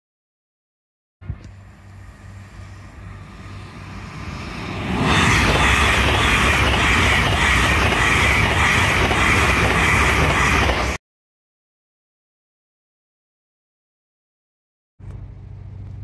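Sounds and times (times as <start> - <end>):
high-speed train passing: 1.3 - 11.0.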